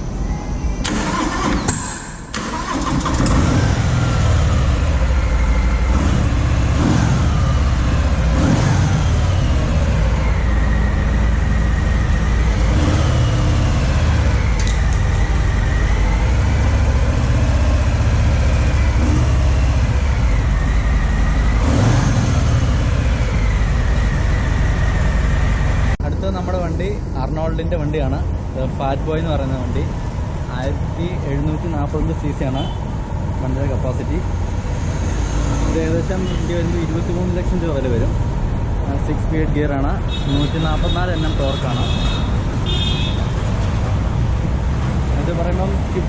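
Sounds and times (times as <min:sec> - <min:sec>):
starter motor cranking: 0:00.8 - 0:03.7
motorcycle engine revving: 0:00.8 - 0:26.0.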